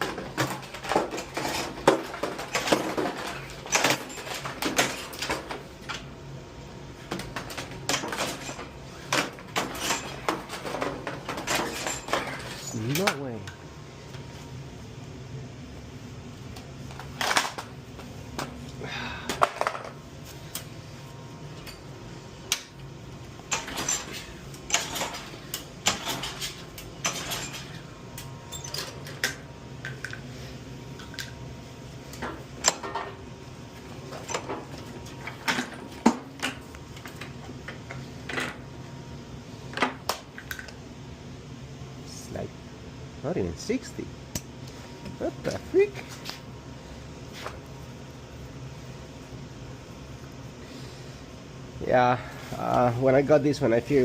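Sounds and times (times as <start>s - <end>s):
metal tools clinking and rattling: 0.0s - 6.0s, 7.4s - 13.4s, 23.5s - 29.4s
steady low hum: 0.0s - 54.0s.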